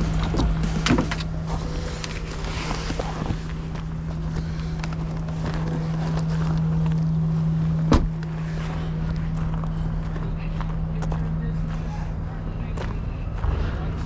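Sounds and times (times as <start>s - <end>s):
car engine humming: 0.0s - 2.3s.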